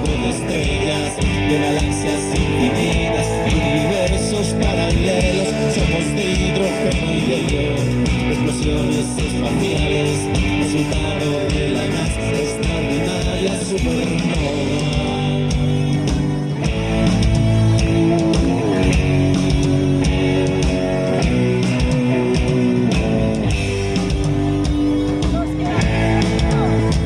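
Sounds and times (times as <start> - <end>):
drum beat: 0.0 - 27.0
guitar: 0.0 - 27.0.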